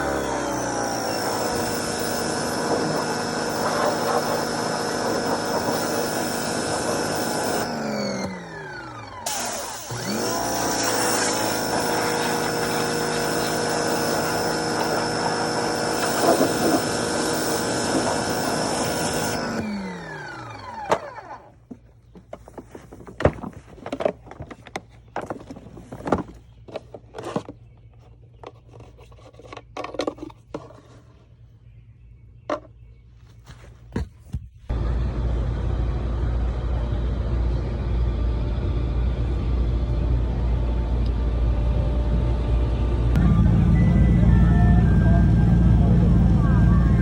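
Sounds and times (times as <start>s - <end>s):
motor-driven tool running: 0.0s - 21.6s.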